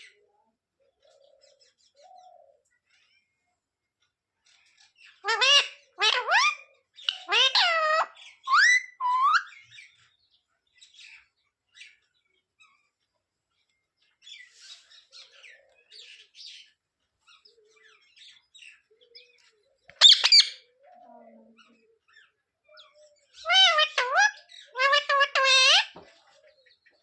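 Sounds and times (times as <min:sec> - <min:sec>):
parrot chirps and chatter: 0:04.4 - 0:27.0
parrot harsh squawk: 0:05.3 - 0:09.5, 0:20.0 - 0:20.6, 0:23.4 - 0:26.0.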